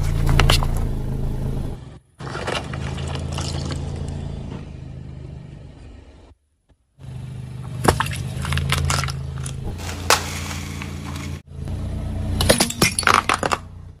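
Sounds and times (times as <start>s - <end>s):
car engine running: 0.0s - 14.0s
tyre crushing objects: 7.7s - 11.5s.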